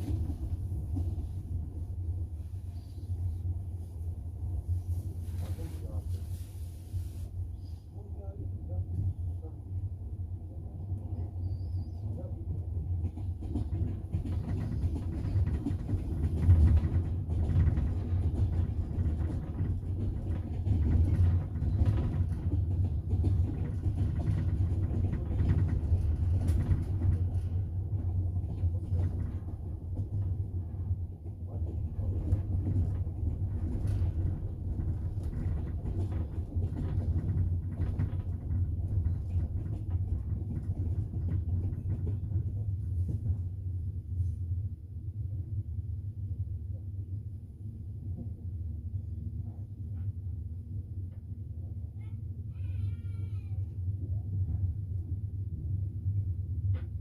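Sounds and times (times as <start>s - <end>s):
train interior rumble: 0.0s - 57.0s
train wheels clacking: 12.9s - 30.4s.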